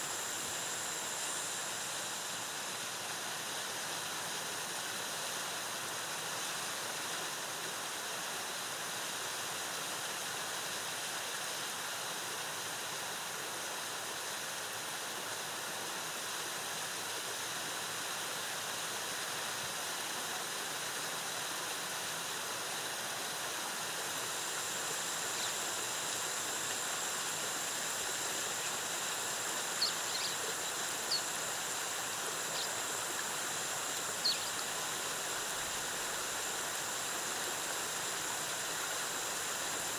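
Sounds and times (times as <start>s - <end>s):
high chirps: 29.8s - 31.3s, 34.2s - 34.6s.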